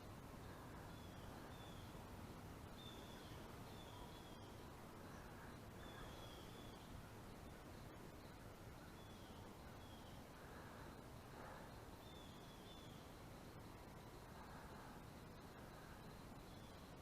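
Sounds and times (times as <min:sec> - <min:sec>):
bird chirping: 0:00.8 - 0:02.0, 0:02.7 - 0:10.2, 0:12.0 - 0:13.1.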